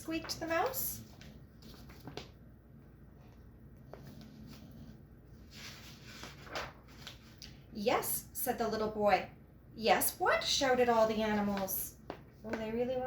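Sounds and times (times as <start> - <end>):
low steady hum: 0.0 - 13.0
soft rustle: 0.2 - 2.4, 3.1 - 7.6.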